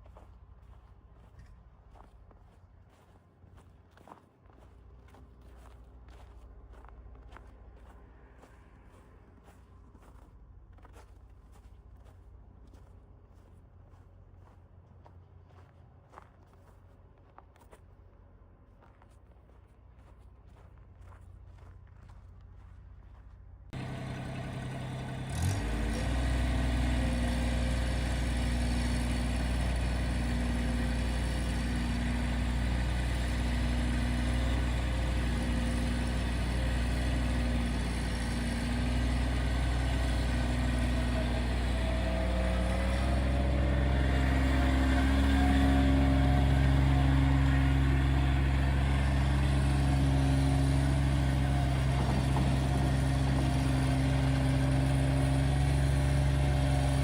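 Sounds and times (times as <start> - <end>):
loader engine starting and idling: 23.7 - 57.0.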